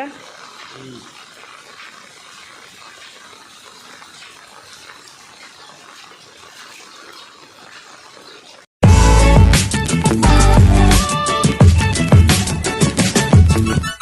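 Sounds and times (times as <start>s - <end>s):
faint rushing water: 0.0s - 8.7s.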